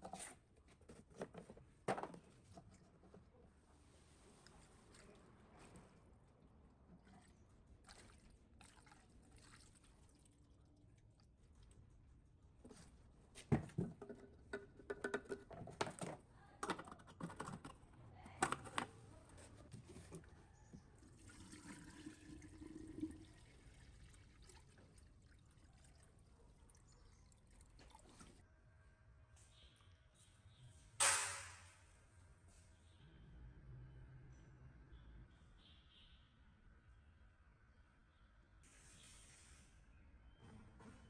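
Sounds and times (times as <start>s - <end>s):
water splashing and pouring: 7.2s - 11.2s, 21.1s - 28.4s.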